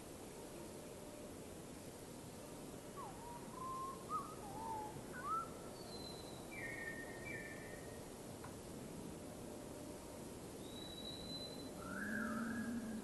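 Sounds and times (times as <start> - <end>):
steady background hiss: 0.0 - 13.0
bird singing whistled notes: 3.0 - 8.0, 10.6 - 13.0.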